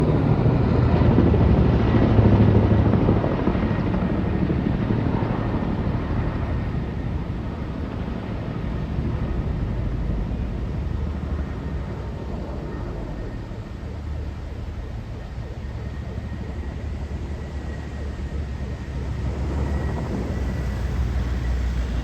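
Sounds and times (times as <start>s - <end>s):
helicopter rotor chopping: 0.0s - 22.0s.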